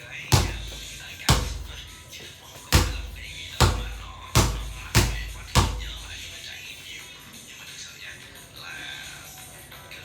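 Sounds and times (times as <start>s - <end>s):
basketball bouncing on court: 0.3s - 2.0s, 2.7s - 6.3s.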